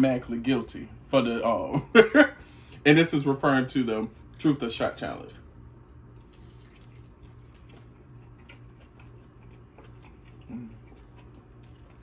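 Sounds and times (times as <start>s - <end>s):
chewing mouth clicks: 6.2s - 12.0s.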